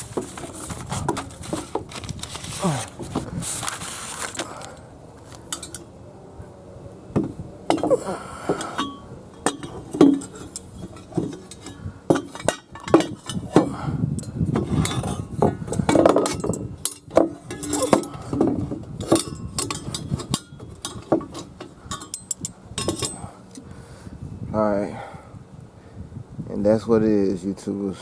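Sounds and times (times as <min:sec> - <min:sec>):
metal pipe pieces clinking: 0:05.4 - 0:05.9, 0:07.7 - 0:23.6.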